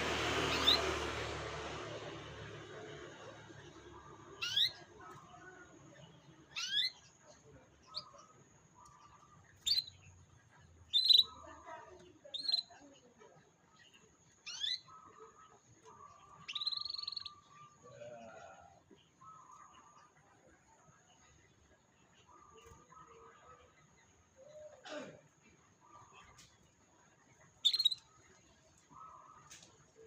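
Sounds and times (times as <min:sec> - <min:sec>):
canary chirping: 0:00.0 - 0:17.9, 0:26.1 - 0:29.7.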